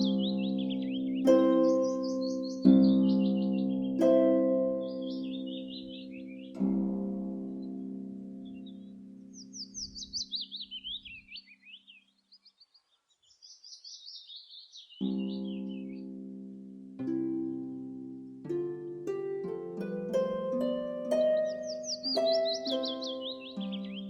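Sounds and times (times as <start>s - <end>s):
songbird trilling: 0.0s - 4.0s, 4.8s - 6.6s, 8.4s - 16.0s, 21.4s - 24.0s
held chord: 0.0s - 9.4s, 15.1s - 24.0s
plucked harp-like music: 0.0s - 10.2s, 15.0s - 24.0s.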